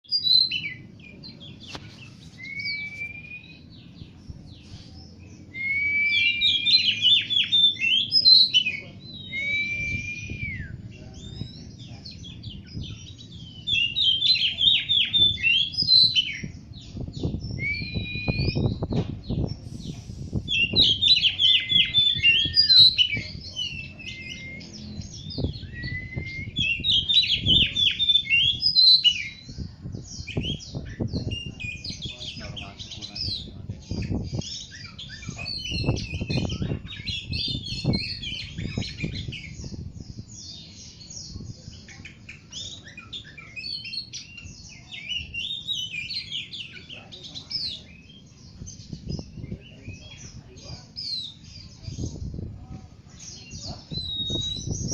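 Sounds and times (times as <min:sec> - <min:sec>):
bird chattering song: 0:00.0 - 0:54.9
bird whistles: 0:02.3 - 0:03.8, 0:05.5 - 0:11.6, 0:17.5 - 0:18.9, 0:19.7 - 0:29.4, 0:53.8 - 0:54.9.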